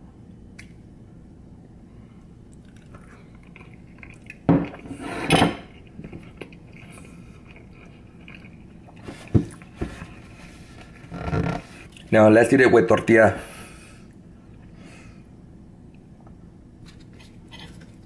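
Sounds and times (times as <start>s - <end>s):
person chewing: 2.5s - 4.9s, 5.7s - 10.4s.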